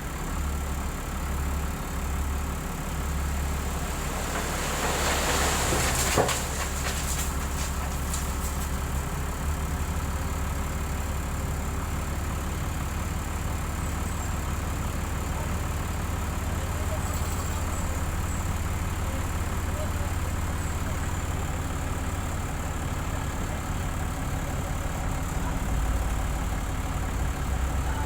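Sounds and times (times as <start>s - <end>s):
diesel engine droning: 0.0s - 28.0s.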